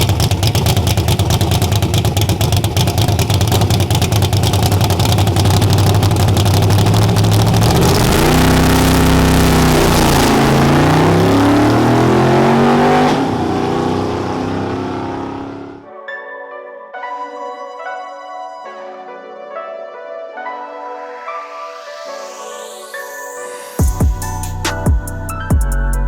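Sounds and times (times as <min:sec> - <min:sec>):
drag racing engine accelerating: 0:00.0 - 0:15.8
music: 0:15.8 - 0:26.0.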